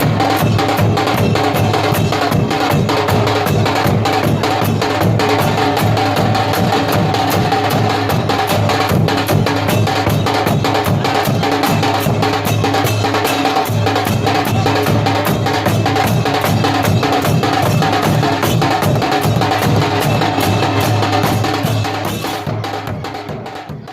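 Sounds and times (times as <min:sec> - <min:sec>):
drums beaten in fast rhythm: 0:00.0 - 0:23.9.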